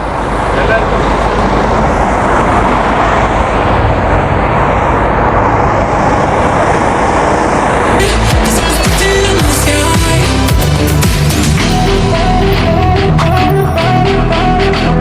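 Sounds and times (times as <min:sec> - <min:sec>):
bus engine and road noise: 0:00.0 - 0:15.0
electronic music with a beat: 0:08.0 - 0:15.0.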